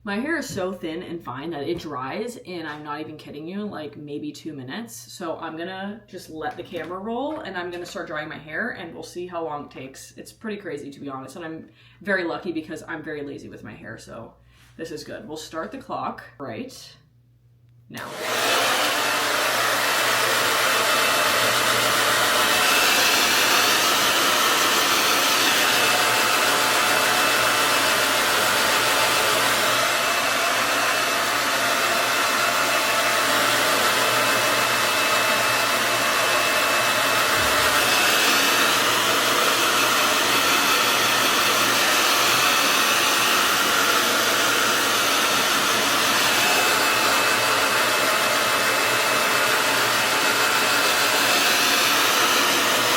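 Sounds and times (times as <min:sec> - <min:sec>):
hair dryer running: 0:18.0 - 0:52.9.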